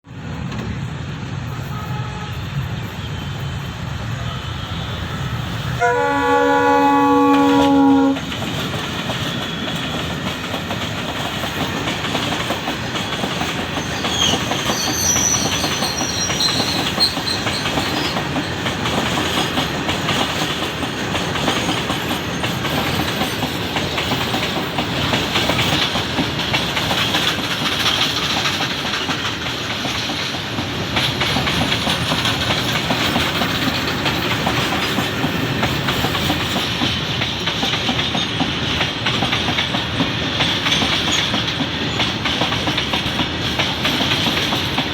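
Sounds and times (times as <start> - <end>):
high squeal: 13.7 - 18.2.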